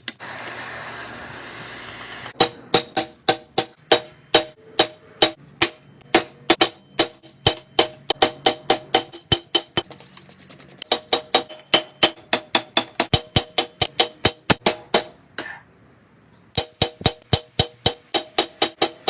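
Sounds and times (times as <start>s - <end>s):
hammer striking steel on anvil: 2.4s - 9.8s, 10.9s - 15.6s, 16.6s - 19.0s.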